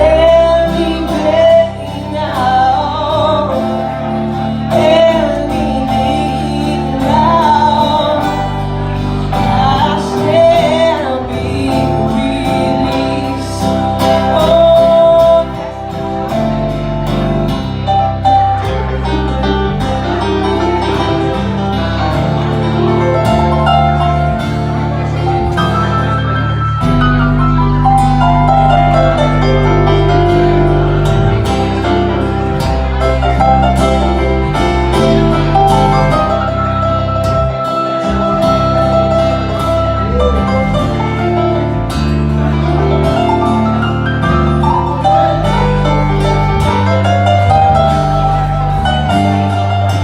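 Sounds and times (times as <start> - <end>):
person singing: 0.0 - 23.6
bass line: 0.0 - 50.0
guitar: 0.0 - 50.0.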